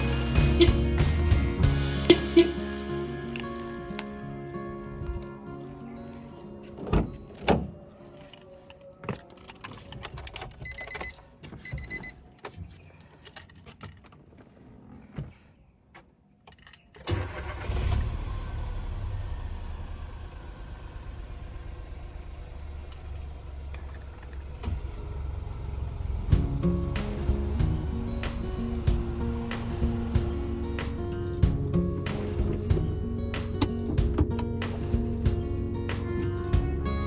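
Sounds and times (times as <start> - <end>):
car engine starting and idling: 0.0 - 8.6, 17.0 - 37.0
keys jangling: 2.6 - 7.4, 12.2 - 14.1.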